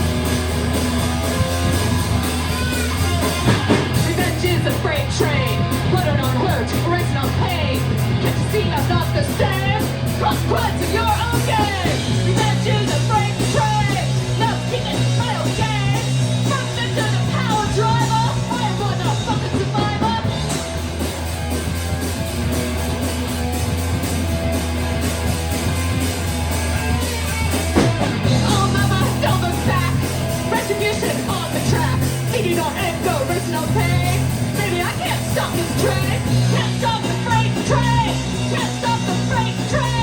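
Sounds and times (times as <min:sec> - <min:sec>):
rock band playing live: 0:00.0 - 0:40.0
person singing: 0:02.2 - 0:20.6, 0:28.2 - 0:40.0.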